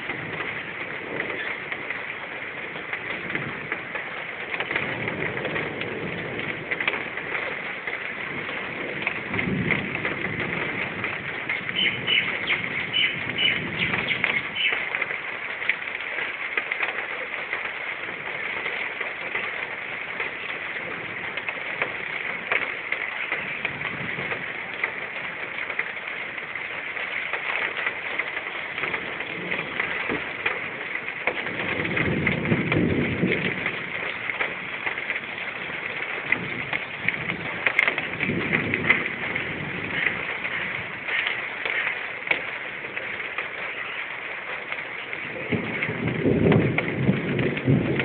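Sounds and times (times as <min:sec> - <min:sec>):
heavy rain falling: 0:00.0 - 0:48.0
low thunder rumble: 0:00.0 - 0:48.0.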